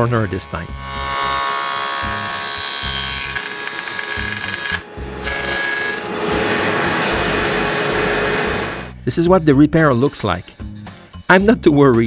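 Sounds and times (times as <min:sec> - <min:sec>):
power tool cutting wood: 0:00.0 - 0:08.9.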